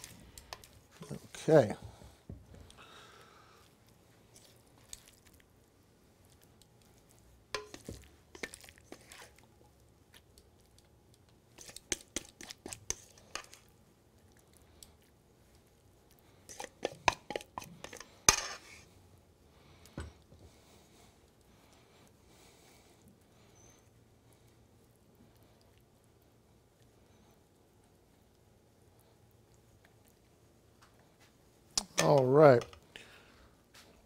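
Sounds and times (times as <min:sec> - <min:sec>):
utensil scraping a bowl: 0:07.6 - 0:09.4, 0:11.6 - 0:13.6, 0:16.5 - 0:18.9.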